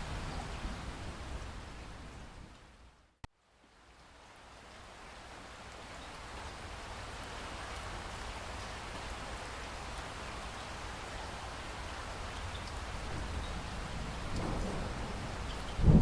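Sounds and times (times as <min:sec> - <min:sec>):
steady rain hiss: 0:00.0 - 0:16.0
raindrop ticks: 0:14.2 - 0:16.0.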